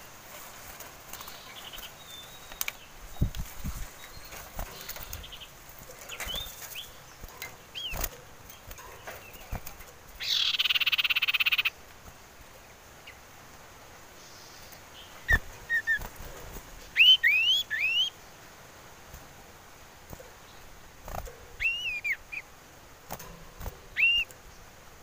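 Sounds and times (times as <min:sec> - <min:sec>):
bird whistles and trills: 0:09.0 - 0:11.7, 0:15.2 - 0:16.1, 0:17.0 - 0:18.2, 0:21.6 - 0:22.4, 0:23.9 - 0:24.3.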